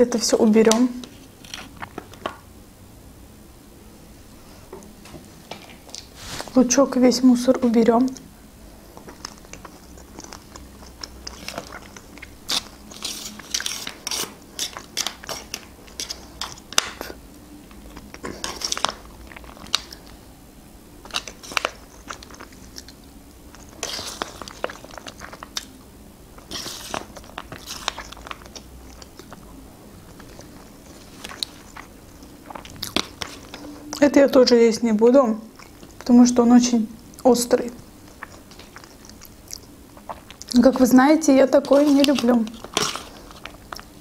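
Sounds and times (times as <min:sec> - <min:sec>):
chewing and biting meat: 0:08.9 - 0:20.2, 0:20.9 - 0:34.1, 0:37.9 - 0:40.6, 0:41.9 - 0:44.0.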